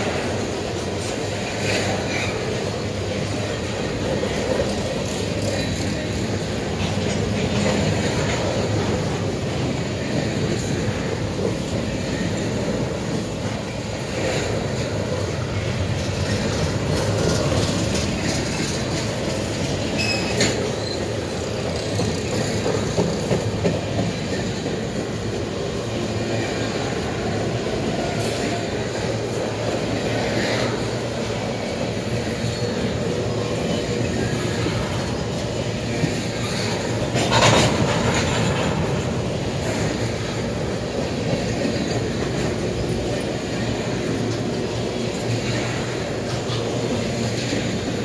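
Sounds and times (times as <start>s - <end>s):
steel wheels rumbling on rails: 0.0s - 48.0s
high wheel squeal: 19.8s - 21.5s.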